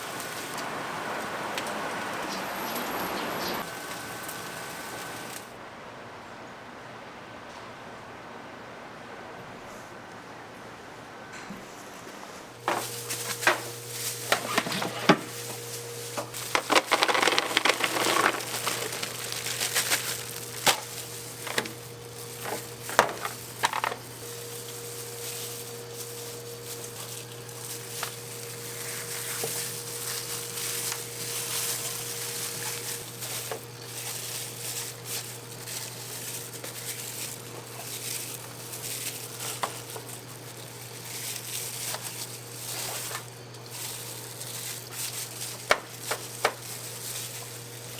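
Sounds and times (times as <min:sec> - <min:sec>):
food sizzling: 0:00.0 - 0:05.5, 0:12.6 - 0:47.9
utensils knocking and clattering: 0:12.7 - 0:24.1.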